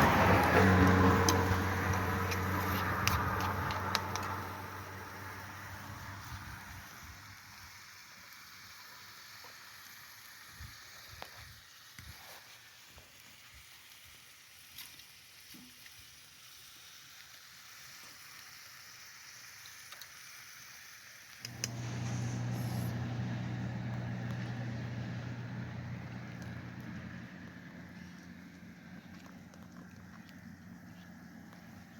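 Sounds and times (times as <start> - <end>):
motor humming: 21.4 - 28.3.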